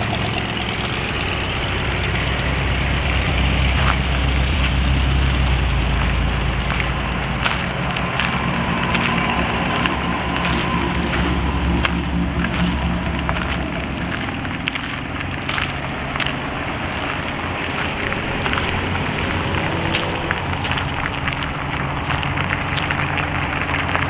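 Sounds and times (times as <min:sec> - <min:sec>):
car engines idling: 0:00.0 - 0:24.0
crackling and crunching noise: 0:00.0 - 0:24.0.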